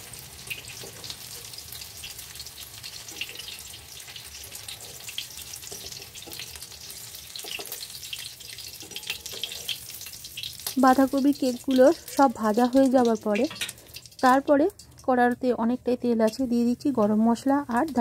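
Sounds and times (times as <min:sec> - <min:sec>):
food frying with crackles: 0:00.0 - 0:18.0
metal spatula scraping pan: 0:04.5 - 0:10.0.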